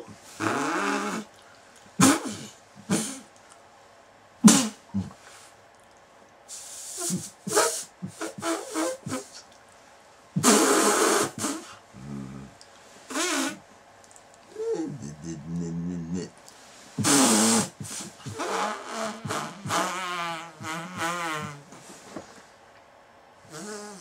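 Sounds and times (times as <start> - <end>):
loud breathy cry: 14.5 - 16.3
person gasping and moaning: 14.5 - 16.4.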